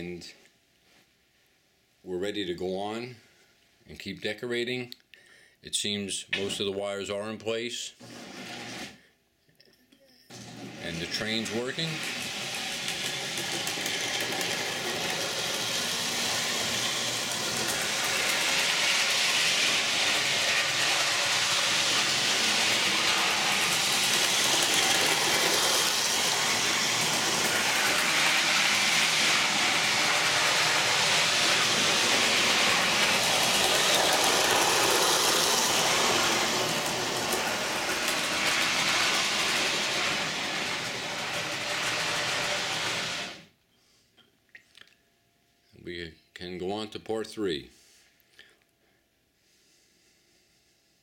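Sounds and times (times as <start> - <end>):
model train running on track: 10.6 - 43.4.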